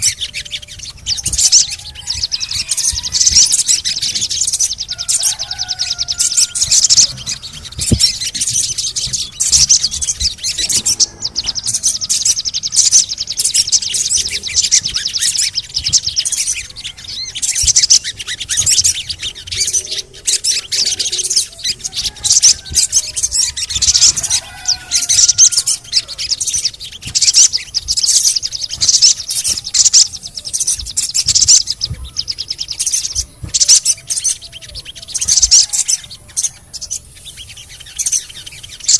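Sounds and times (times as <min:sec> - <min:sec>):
bird chattering and calling: 0:00.0 - 0:38.9.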